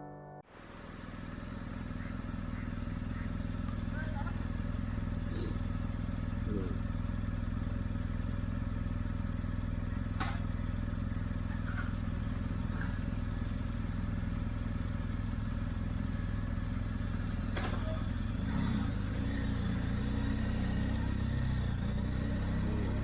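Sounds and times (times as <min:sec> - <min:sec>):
motorcycle engine running: 0:00.5 - 0:23.0.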